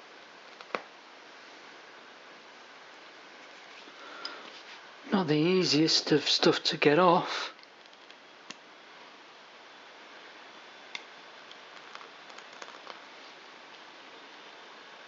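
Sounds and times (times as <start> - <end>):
steady hiss: 0.0 - 15.0
peeling film ticks: 7.6 - 8.6, 10.9 - 13.1.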